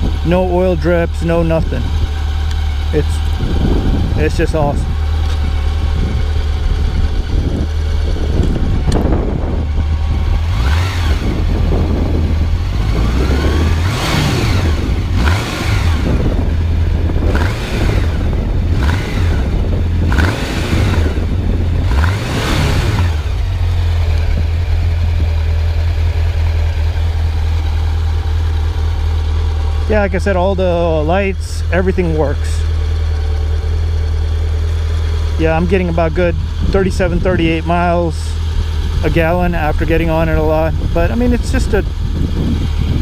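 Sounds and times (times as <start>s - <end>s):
motorcycle engine running: 0.0s - 43.0s
wind rumble on microphone: 3.0s - 27.7s, 35.5s - 43.0s.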